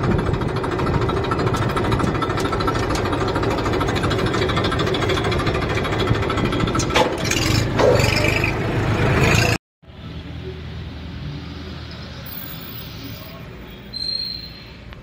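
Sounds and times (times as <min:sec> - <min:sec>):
tractor diesel engine idling: 0:00.0 - 0:09.0.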